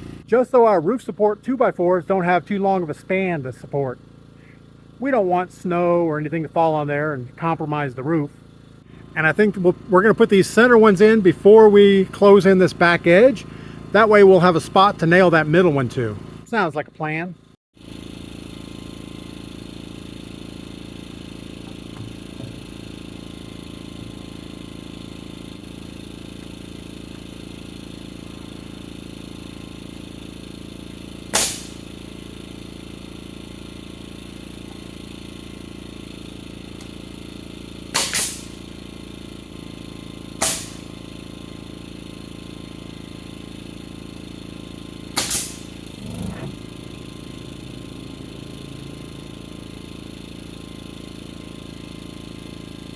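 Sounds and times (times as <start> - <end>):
steady mechanical hum: 0.0 - 52.9
hammer striking nails into wood: 31.3 - 31.9, 37.9 - 38.6, 40.4 - 40.9, 45.2 - 45.8.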